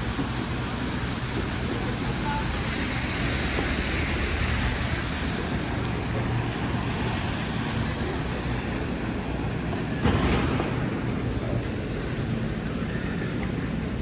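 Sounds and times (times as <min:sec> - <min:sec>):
city traffic rumble: 0:00.0 - 0:14.0
sharp thump: 0:10.0 - 0:12.3.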